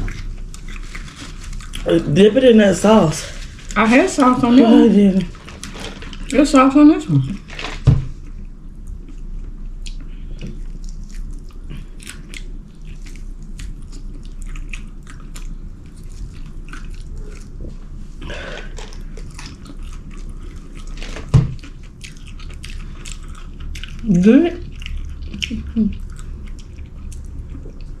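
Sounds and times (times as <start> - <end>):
chewing with wet mouth clicks: 8.2 - 17.6, 18.7 - 28.0.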